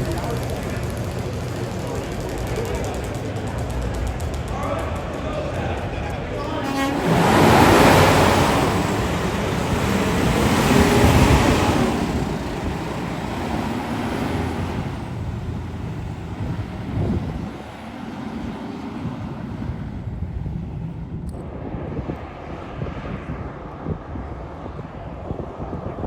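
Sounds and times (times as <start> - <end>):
traffic rumble: 0.0 - 26.0.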